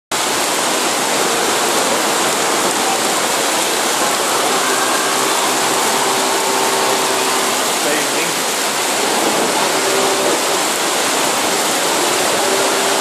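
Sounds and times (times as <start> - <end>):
heavy rain splashing into water: 0.1 - 13.0.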